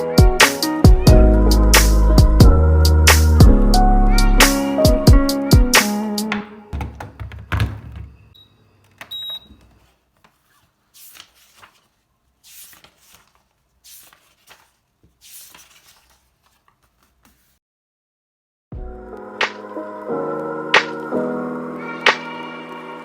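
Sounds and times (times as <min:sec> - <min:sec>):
soft knocks and handling noises: 0:06.3 - 0:08.2.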